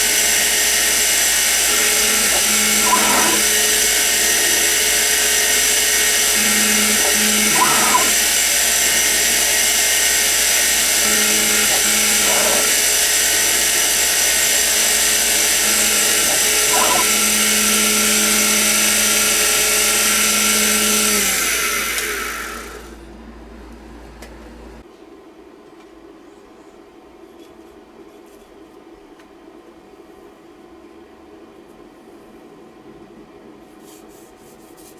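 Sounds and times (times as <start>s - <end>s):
mill spindle motor whining: 0.0s - 24.8s.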